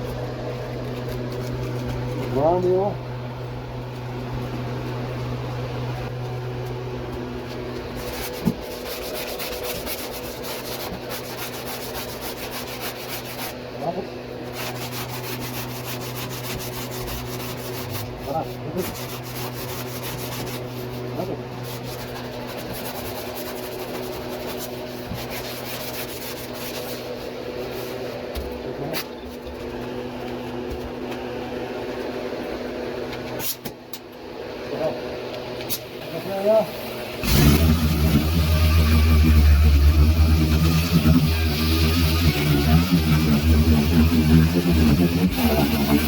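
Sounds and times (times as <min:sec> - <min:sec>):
grinder grinding sheet metal: 0:37.2 - 0:46.0.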